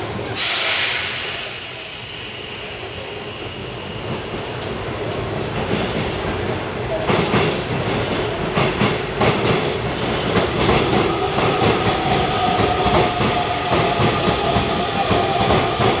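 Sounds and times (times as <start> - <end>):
electric train pulling out: 0.4 - 4.9.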